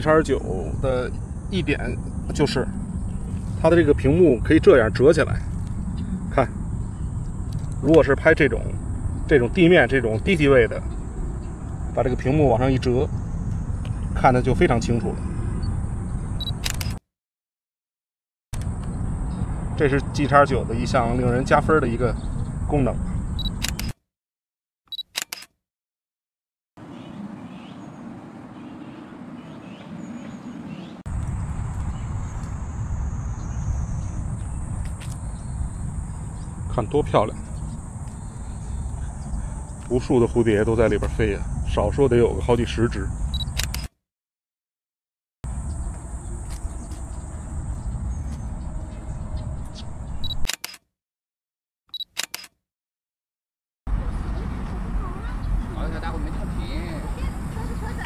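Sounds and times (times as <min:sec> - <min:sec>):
steady outdoor background: 0:00.0 - 0:17.0, 0:18.6 - 0:24.0, 0:24.9 - 0:25.6, 0:26.8 - 0:44.0, 0:45.4 - 0:50.9, 0:51.9 - 0:52.6, 0:53.9 - 0:58.0
camera focus beep: 0:16.4 - 0:17.0, 0:23.4 - 0:24.0, 0:24.9 - 0:25.5, 0:43.3 - 0:43.9, 0:50.2 - 0:50.8, 0:51.9 - 0:52.5
camera shutter clicks: 0:16.5 - 0:17.0, 0:23.4 - 0:24.0, 0:25.0 - 0:25.5, 0:43.4 - 0:43.9, 0:50.4 - 0:50.8, 0:52.0 - 0:52.6.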